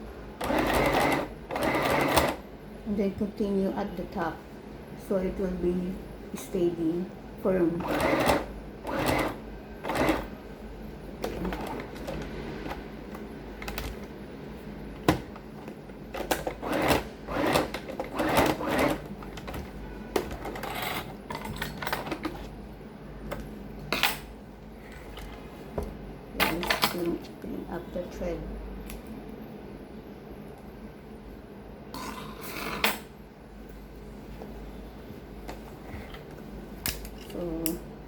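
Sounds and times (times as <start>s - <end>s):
sewing machine stitching: 0.4s - 2.4s, 7.8s - 10.3s, 16.2s - 19.1s.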